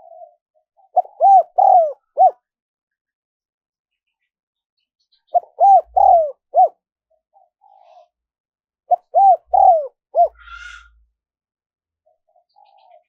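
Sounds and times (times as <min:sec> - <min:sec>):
dove cooing: 0:00.0 - 0:02.5, 0:05.3 - 0:06.8, 0:08.9 - 0:10.9.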